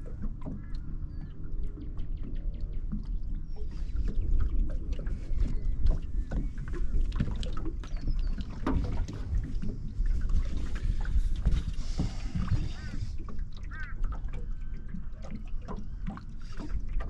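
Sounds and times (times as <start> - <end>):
wind rumble on microphone: 0.0 - 13.6
water slapping boat hull: 0.0 - 17.0.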